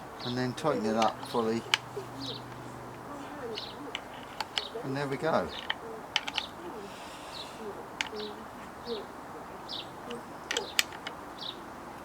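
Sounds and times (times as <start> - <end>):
bird high falling call: 0.0 - 11.7
low dove-like cooing: 0.0 - 12.0
handling clicks: 0.5 - 6.6, 10.0 - 11.2.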